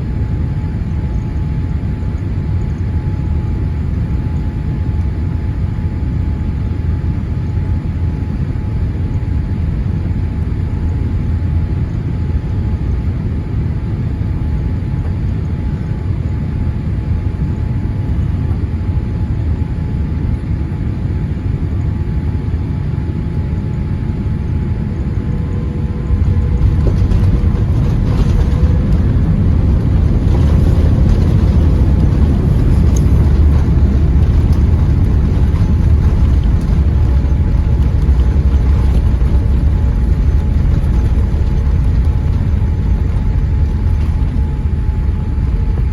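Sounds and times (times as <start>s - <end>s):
airliner rolling on runway: 0.0s - 45.9s
engines and airflow rushing: 16.8s - 45.9s.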